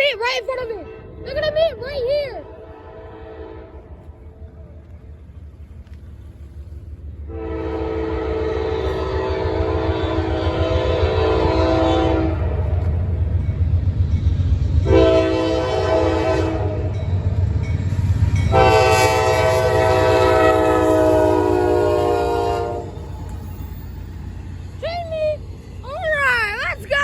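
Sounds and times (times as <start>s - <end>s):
passing train rumble: 0.0s - 27.0s
locomotive air horn blasts: 2.4s - 3.9s, 7.3s - 12.6s, 14.8s - 17.0s, 18.5s - 23.1s.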